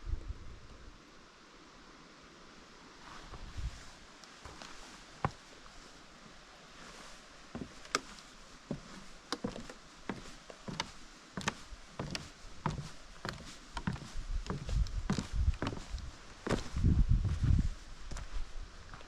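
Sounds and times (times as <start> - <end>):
footsteps on forest trail: 3.0 - 5.8, 6.8 - 19.0.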